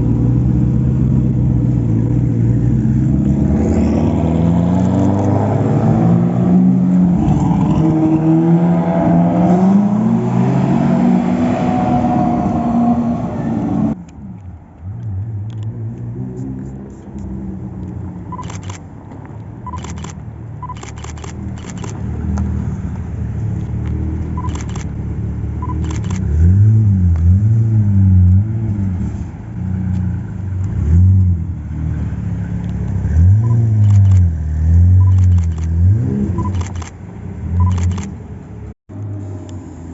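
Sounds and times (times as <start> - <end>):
car accelerating hard: 0.0 - 14.0.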